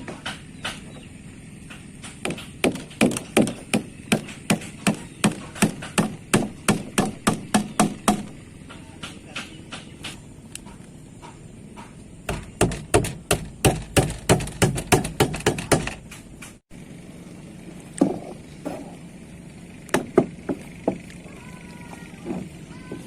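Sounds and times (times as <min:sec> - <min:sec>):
sharp strikes on wood: 0:00.0 - 0:01.0, 0:01.6 - 0:16.6, 0:19.9 - 0:21.0.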